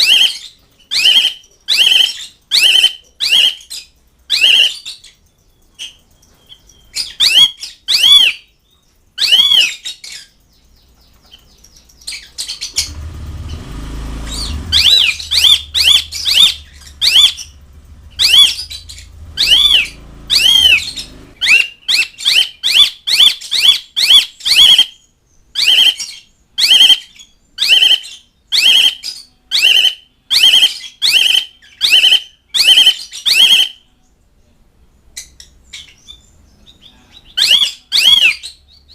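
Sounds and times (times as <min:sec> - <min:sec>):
starling whistled calls: 0:00.0 - 0:05.2, 0:05.8 - 0:08.6, 0:09.2 - 0:10.4, 0:11.4 - 0:33.9, 0:35.2 - 0:38.9
low rumble: 0:12.9 - 0:21.4.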